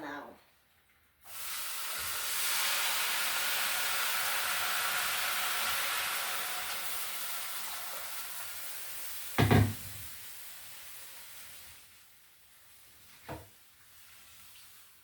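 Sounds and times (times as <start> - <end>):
frying pan hissing: 1.2 - 15.0
pot or utensil knocking: 9.4 - 10.0.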